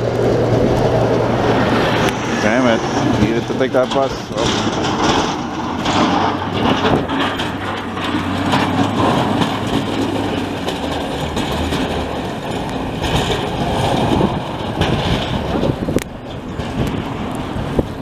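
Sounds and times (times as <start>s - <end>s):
low hum dropping in pitch: 0.0s - 18.0s
metro train rumbling: 0.0s - 18.0s.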